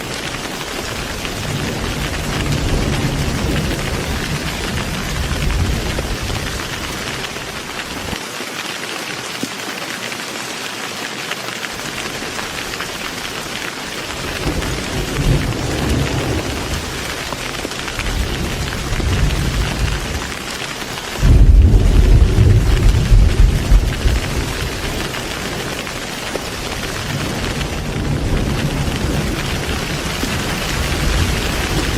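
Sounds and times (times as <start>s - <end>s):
heavy rain: 0.0s - 31.9s
thunder rumbling: 0.1s - 8.2s, 14.1s - 20.6s, 21.2s - 31.9s
loud thunderclap: 1.1s - 7.2s, 14.2s - 20.3s, 21.2s - 25.6s, 26.7s - 31.9s.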